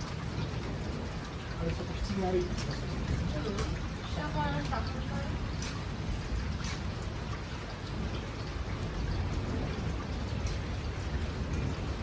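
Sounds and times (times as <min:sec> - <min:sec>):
heavy rain hiss: 0:00.0 - 0:12.0
low thunder rumble: 0:00.0 - 0:12.0
raindrops ticking: 0:00.0 - 0:12.0.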